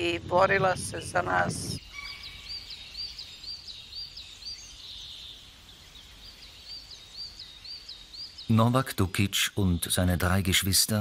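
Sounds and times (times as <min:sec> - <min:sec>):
bird chirping: 0:00.1 - 0:11.0.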